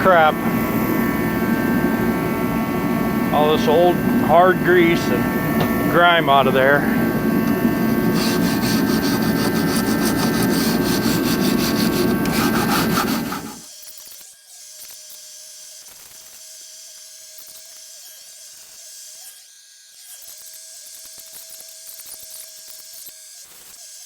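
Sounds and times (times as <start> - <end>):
faint steady hum: 0.0 - 13.6
scraping hardened grease: 7.4 - 13.6.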